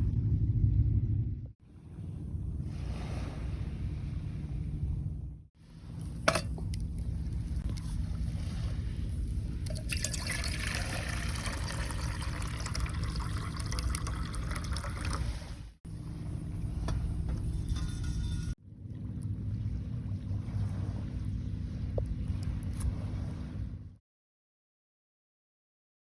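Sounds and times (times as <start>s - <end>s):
low steady rumble: 0.0s - 24.0s
water trickling and pouring: 6.0s - 15.8s.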